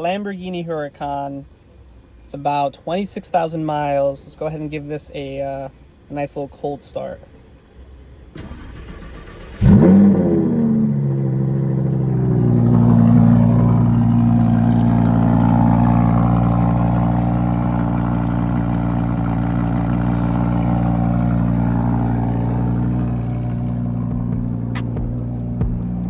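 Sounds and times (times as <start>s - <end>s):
car engine fast idle: 8.4s - 26.0s.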